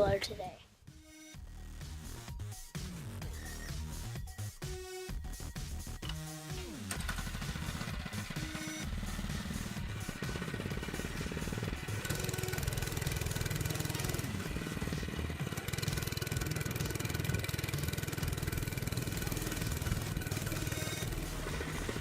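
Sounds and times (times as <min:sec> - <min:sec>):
small motorbike engine revving: 0:06.0 - 0:22.0.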